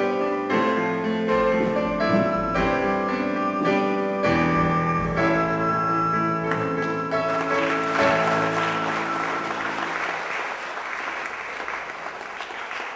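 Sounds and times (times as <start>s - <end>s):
audience applauding: 6.5s - 12.9s.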